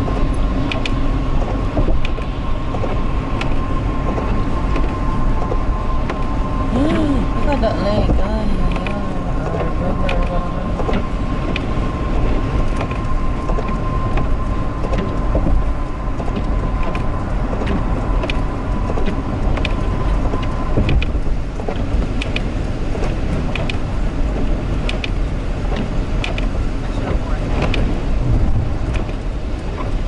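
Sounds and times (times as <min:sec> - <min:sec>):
thin steady whine: 0:00.0 - 0:17.2
car road and engine rumble: 0:00.0 - 0:30.0.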